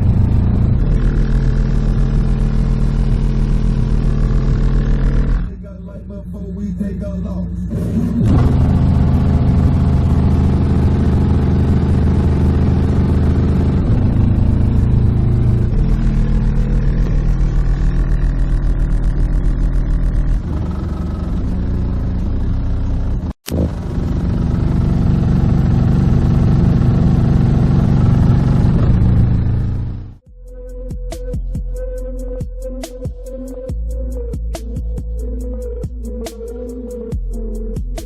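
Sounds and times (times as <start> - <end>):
loud bass music: 0.0 - 38.0.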